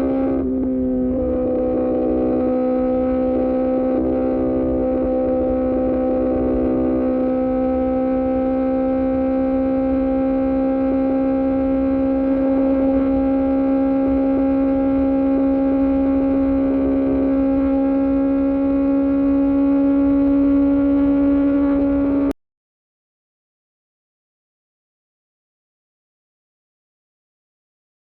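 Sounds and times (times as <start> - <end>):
motorcycle engine at high revs: 0.0 - 22.3.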